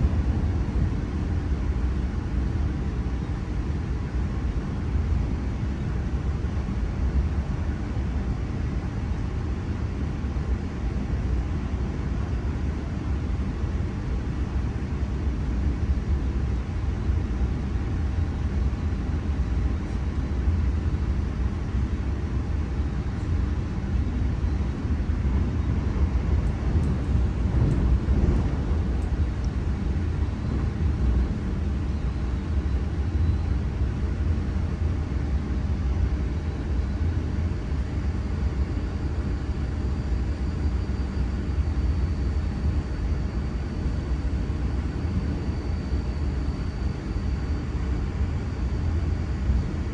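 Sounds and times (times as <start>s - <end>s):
faint high whine: 0.0s - 49.9s
electric train rumbling: 24.6s - 31.8s.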